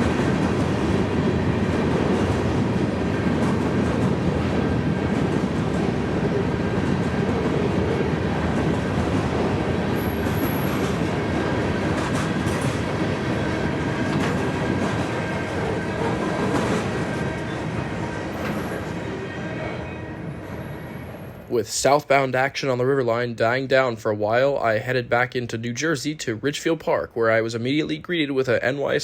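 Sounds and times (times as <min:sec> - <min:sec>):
train wheels rumbling on rails: 0:00.0 - 0:23.0
high wheel squeal: 0:10.0 - 0:10.9, 0:18.3 - 0:21.4.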